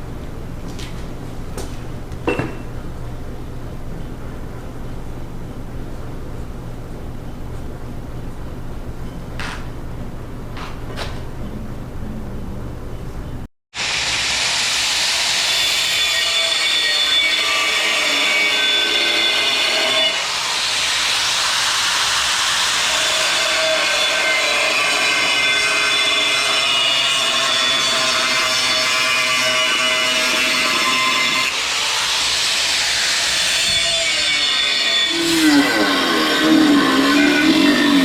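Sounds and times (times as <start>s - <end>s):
power tool cutting metal: 13.8s - 38.0s.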